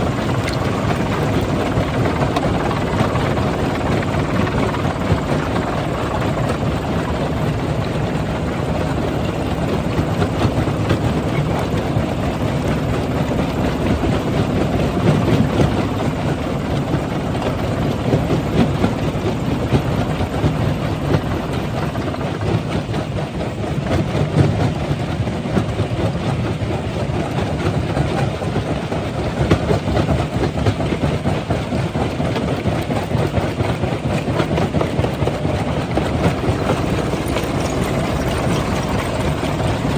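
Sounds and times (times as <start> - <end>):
rattling and clatter: 30.8 - 39.9
rock-crushing machinery drone: 35.2 - 39.9.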